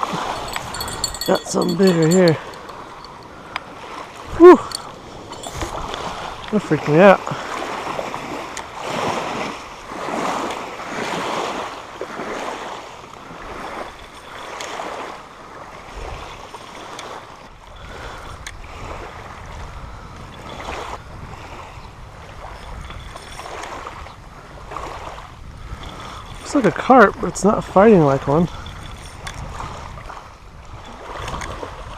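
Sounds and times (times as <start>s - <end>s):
water splashing and sloshing: 0.0s - 19.6s, 20.4s - 31.9s
wind rumbling on microphone: 0.0s - 31.9s
sharp ticks: 0.2s - 3.3s.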